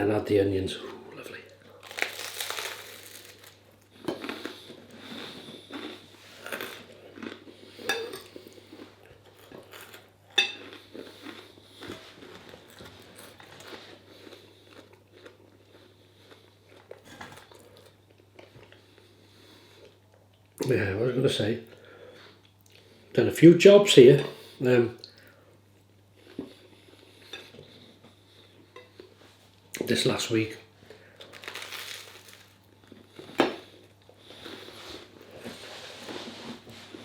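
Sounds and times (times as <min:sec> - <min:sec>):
chewing: 0:01.8 - 0:20.0
cutlery clinking on a plate: 0:07.9 - 0:08.4.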